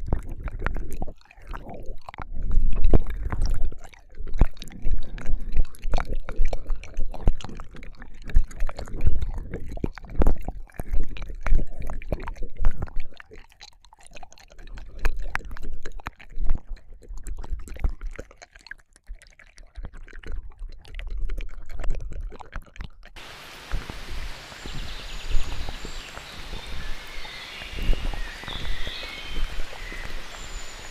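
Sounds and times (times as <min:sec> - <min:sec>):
wet mouth clicks and slurps: 0:00.0 - 0:23.2, 0:24.6 - 0:30.9
steady outdoor hiss: 0:23.2 - 0:30.9.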